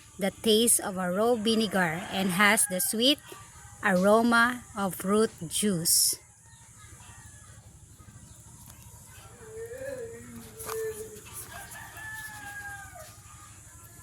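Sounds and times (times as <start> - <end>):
rooster crowing faintly: 6.2 - 13.6.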